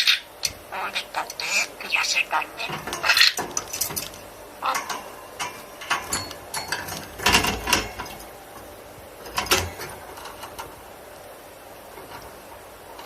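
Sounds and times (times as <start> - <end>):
budgerigar chattering and warbling: 0.0 - 3.5, 4.6 - 4.9.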